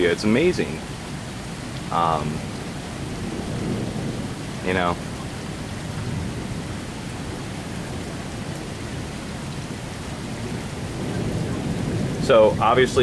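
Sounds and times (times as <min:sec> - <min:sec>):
heavy rain hissing: 0:00.0 - 0:13.0.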